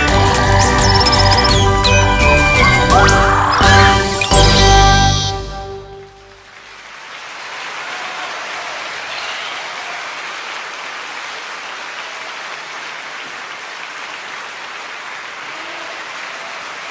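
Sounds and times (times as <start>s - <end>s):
flock of birds chattering: 0.0s - 4.5s.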